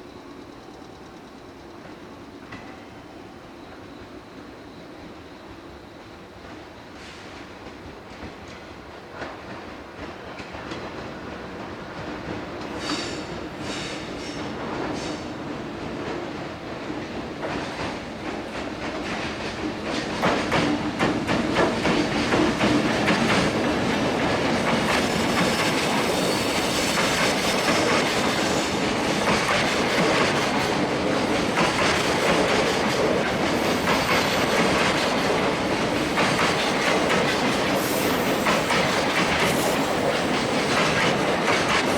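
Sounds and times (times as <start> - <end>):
train wheels clattering over rail joints: 17.3 - 41.9
faint high wheel squeal: 37.7 - 41.2.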